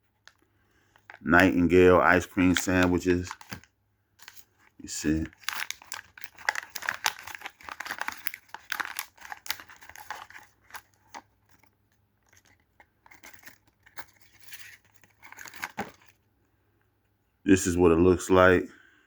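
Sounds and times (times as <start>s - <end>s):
wrapper crinkling: 2.1s - 16.2s.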